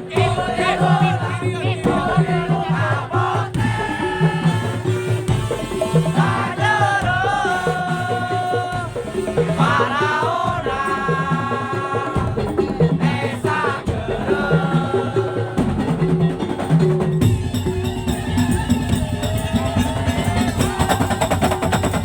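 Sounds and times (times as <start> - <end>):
bamboo slit drums and drums: 0.0 - 22.0
high melody with sliding notes: 16.0 - 21.2.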